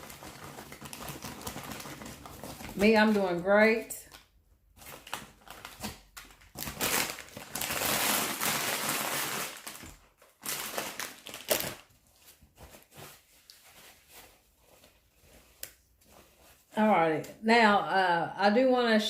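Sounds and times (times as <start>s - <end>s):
food packaging crinkling: 0.0s - 3.4s, 4.0s - 16.6s.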